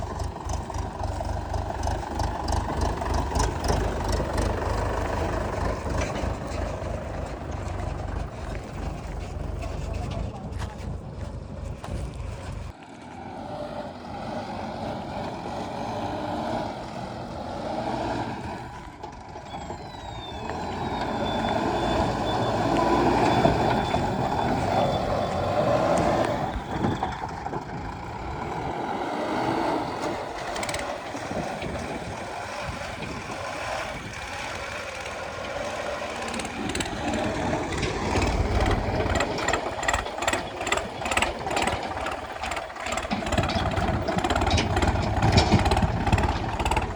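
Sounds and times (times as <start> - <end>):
diesel engine running under load: 0.0 - 46.9
rattling clicks: 36.3 - 46.9.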